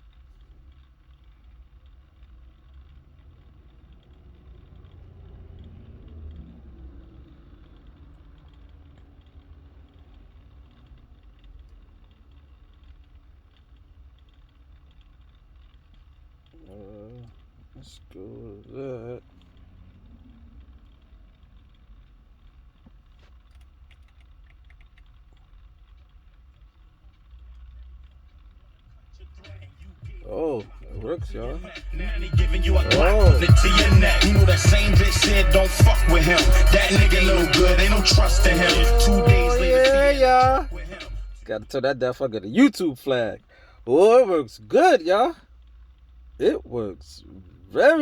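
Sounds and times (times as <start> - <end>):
low rumble inside car cabin: 16.0 - 26.7, 27.3 - 45.6
small sharp clicks: 19.4 - 28.8.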